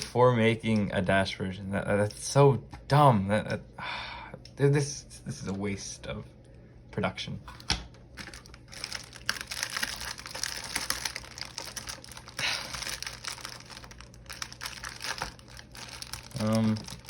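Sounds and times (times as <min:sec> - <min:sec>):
plastic packaging crinkling: 0:08.1 - 0:17.0.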